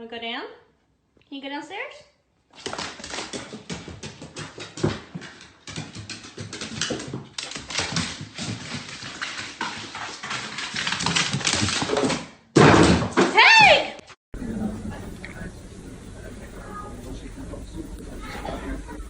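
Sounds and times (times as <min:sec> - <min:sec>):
dog claws clicking on hard floor: 0:02.6 - 0:12.3.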